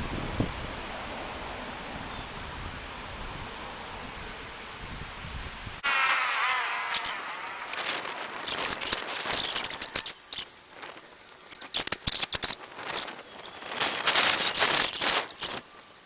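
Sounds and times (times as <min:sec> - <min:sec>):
dry leaves crunching underfoot: 0:05.8 - 0:16.0.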